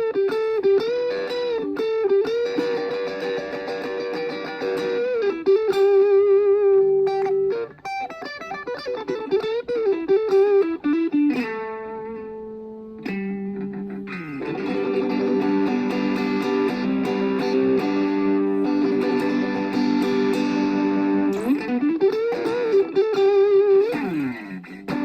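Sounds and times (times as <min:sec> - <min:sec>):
electric guitar played solo: 0:00.0 - 0:25.0.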